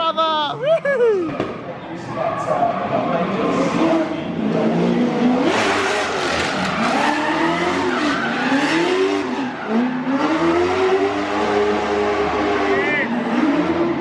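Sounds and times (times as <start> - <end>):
tyres skidding: 3.0 - 14.0
car engine revving: 3.4 - 14.0.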